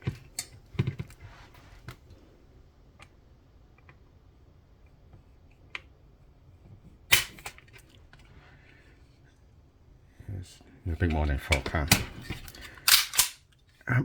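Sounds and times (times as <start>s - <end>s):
pistol metallic clicks: 12.8s - 13.4s.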